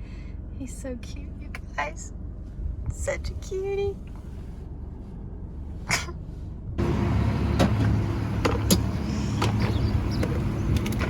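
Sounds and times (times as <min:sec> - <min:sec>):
car cabin hum: 0:00.6 - 0:11.0
sharp clicks and knocks: 0:07.6 - 0:11.0.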